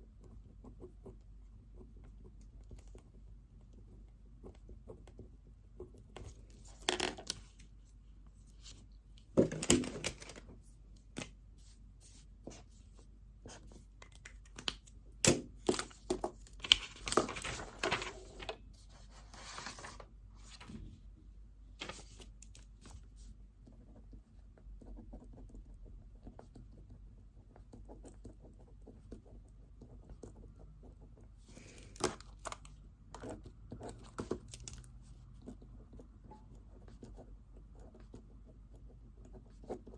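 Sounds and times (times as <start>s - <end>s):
paper rustling: 15.6s - 20.8s, 21.8s - 23.0s
pen writing on paper: 23.7s - 31.3s, 35.4s - 39.9s.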